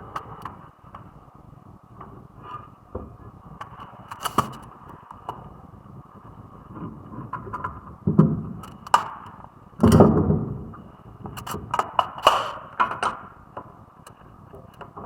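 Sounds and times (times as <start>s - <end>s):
sharp clicks and knocks: 3.0s - 5.4s, 7.3s - 10.3s, 11.3s - 15.0s.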